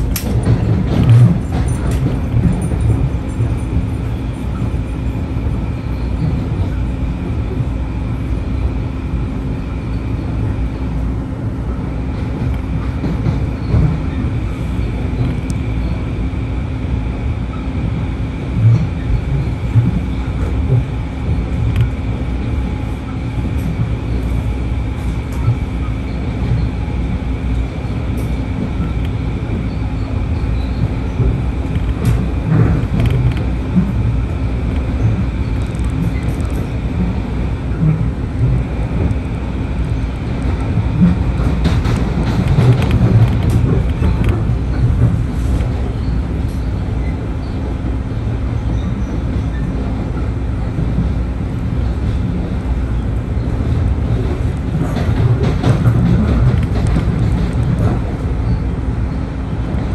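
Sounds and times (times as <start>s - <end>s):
train clatters: 0.0s - 59.9s
train rumbling on tracks: 0.0s - 59.9s.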